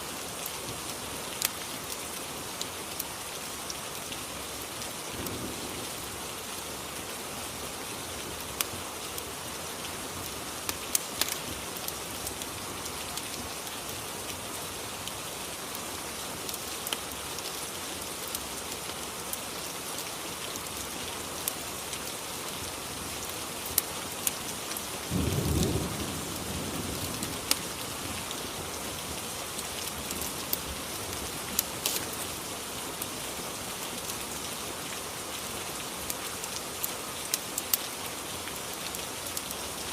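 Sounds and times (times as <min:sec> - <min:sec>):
steady rain: 0:00.0 - 0:39.9
low rumble of thunder: 0:25.1 - 0:28.2.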